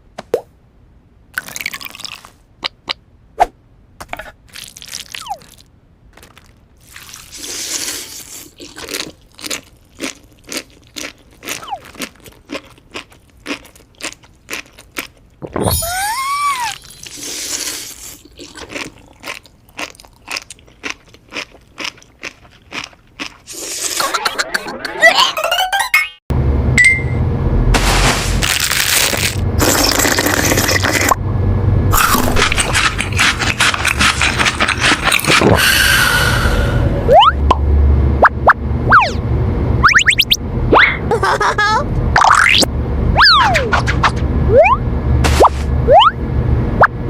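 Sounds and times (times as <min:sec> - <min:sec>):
crunchy chewing: 0:04.5 - 0:15.4, 0:17.2 - 0:24.0, 0:32.0 - 0:35.8
short rising and falling tone: 0:37.0 - 0:39.2, 0:39.8 - 0:41.0, 0:44.4 - 0:46.2.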